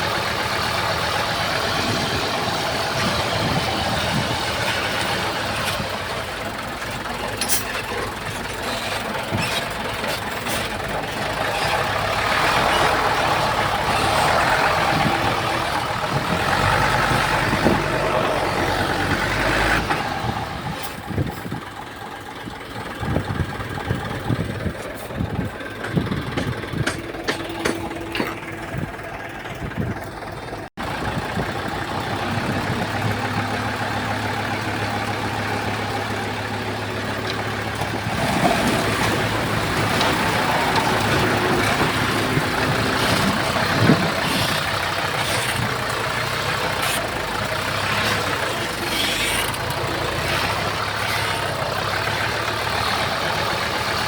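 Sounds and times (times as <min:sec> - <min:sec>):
bulldozer diesel engine running: 0:00.0 - 0:54.0
sharp metallic clanks: 0:25.8 - 0:28.9.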